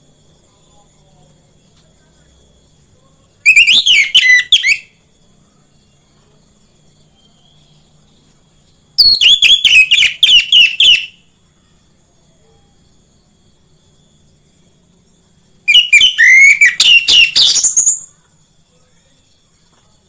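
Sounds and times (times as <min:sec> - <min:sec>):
thrush song whistled notes: 0:15.7 - 0:17.9.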